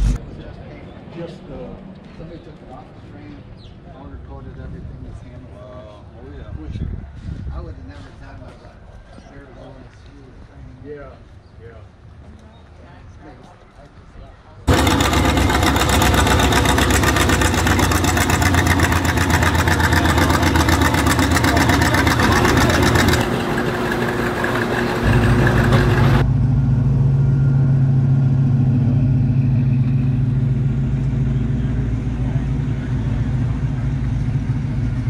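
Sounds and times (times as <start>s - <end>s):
deep engine hum: 0.0s - 0.3s, 14.7s - 35.0s
car engines driving past: 14.7s - 35.0s.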